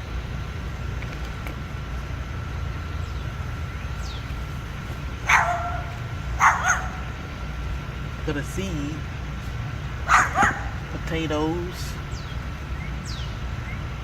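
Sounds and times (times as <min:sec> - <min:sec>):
low background rumble: 0:00.0 - 0:14.0
dog yipping: 0:05.2 - 0:07.2, 0:10.0 - 0:10.8.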